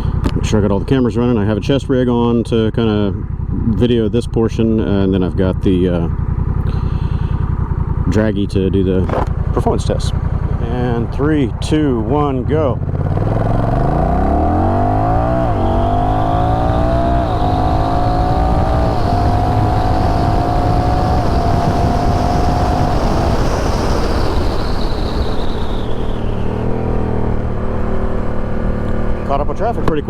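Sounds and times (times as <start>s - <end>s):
motorcycle engine accelerating: 0.0s - 30.0s
wind rush: 14.6s - 28.4s.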